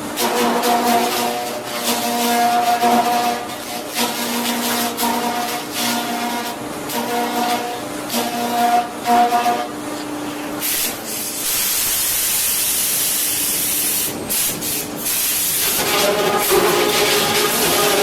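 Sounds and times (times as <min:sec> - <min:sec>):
woodworking machine hissing rush: 0:10.5 - 0:18.0
machine whine: 0:14.3 - 0:18.0.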